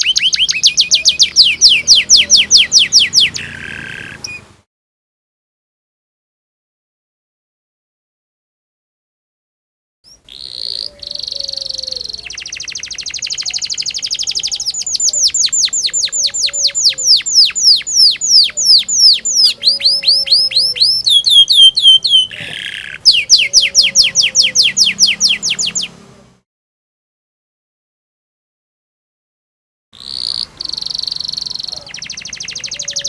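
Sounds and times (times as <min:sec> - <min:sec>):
canary singing: 0:00.0 - 0:04.6, 0:10.1 - 0:26.3, 0:30.0 - 0:33.0.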